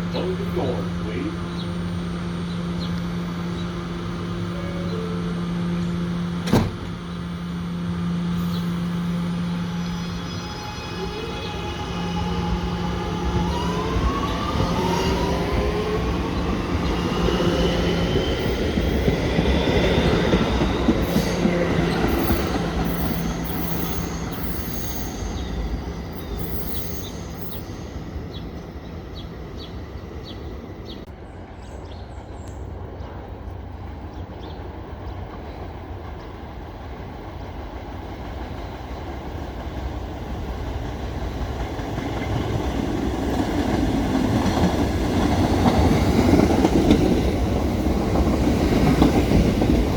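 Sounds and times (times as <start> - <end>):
electric train motors whining: 0.0 - 31.1.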